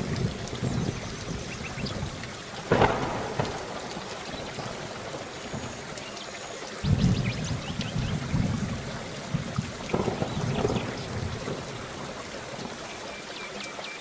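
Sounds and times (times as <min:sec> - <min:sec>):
sharp thunder crack: 0:00.0 - 0:05.8, 0:06.8 - 0:12.2
low rumbling thunder: 0:00.0 - 0:06.1, 0:06.8 - 0:12.8
rain falling: 0:00.0 - 0:14.0.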